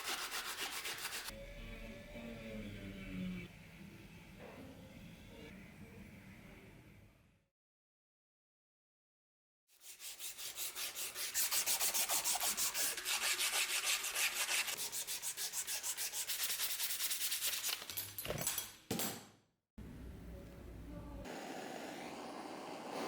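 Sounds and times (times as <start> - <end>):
hand sanding strokes: 0.0 - 1.3, 9.8 - 17.6.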